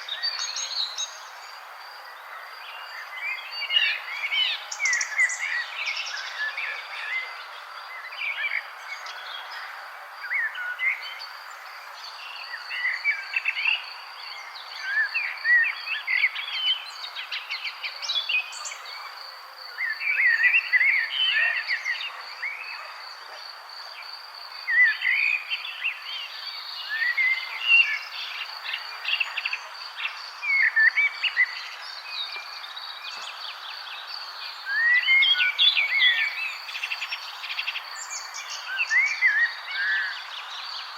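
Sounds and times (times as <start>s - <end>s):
birds chirping and trilling: 0.0s - 23.4s
crickets chirring: 0.0s - 40.9s
low background noise: 0.0s - 40.9s.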